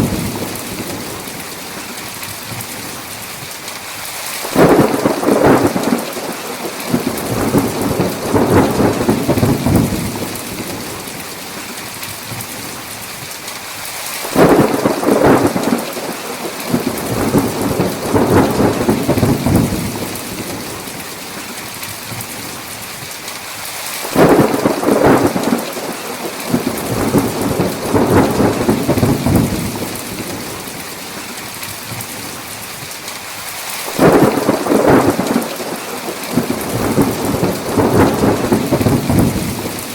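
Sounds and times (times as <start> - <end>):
thunder rumbling: 0.0 - 1.5, 4.5 - 11.3, 14.3 - 21.1, 24.0 - 31.0, 33.9 - 39.9
heavy rain hiss: 0.0 - 39.9.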